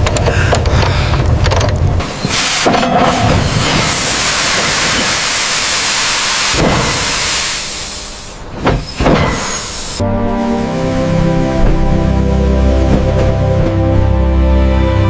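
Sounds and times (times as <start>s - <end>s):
pressurised jet hissing: 2.0s - 11.2s
sharp knocks: 8.6s - 9.6s.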